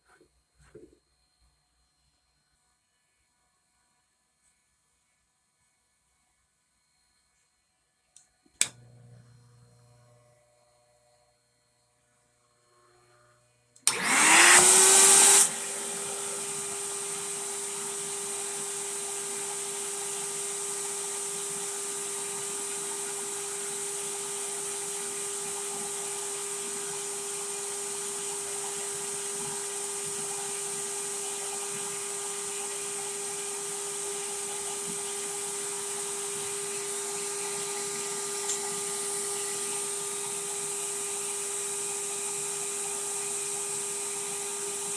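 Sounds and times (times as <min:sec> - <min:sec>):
suction motor whine: 0:12.8 - 0:44.9.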